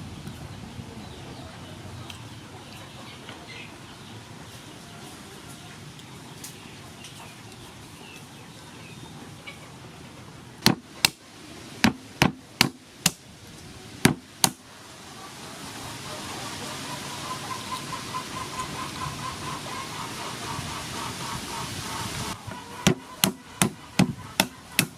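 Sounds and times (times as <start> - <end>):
sharp knocks: 10.6 - 11.2, 11.8 - 13.2, 14.0 - 14.6, 22.8 - 24.9.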